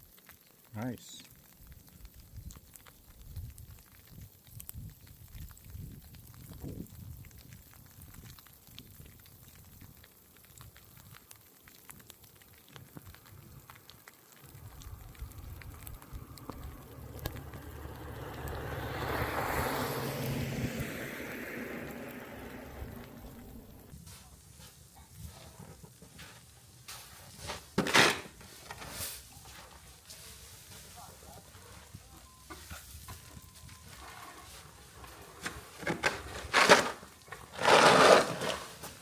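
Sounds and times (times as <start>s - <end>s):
vehicle passing on snowy road: 13.2s - 23.9s, 32.8s - 39.0s.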